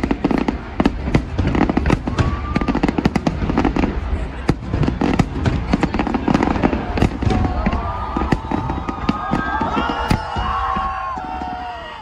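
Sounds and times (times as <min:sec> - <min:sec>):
fireworks bangs and crackles: 0:00.0 - 0:12.0
firework whistle: 0:01.7 - 0:03.1.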